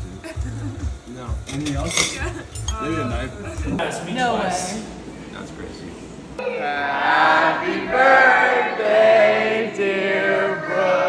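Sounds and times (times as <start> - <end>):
voices singing long held notes: 6.4 - 11.0.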